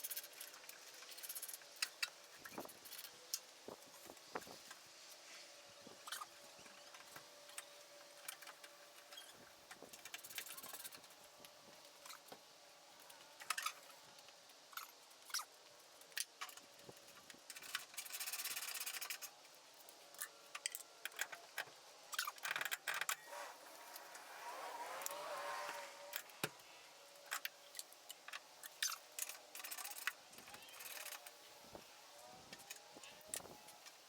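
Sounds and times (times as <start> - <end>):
rapid clicking or scraping: 0.0 - 4.8, 6.0 - 11.2, 16.1 - 19.3, 20.1 - 31.4.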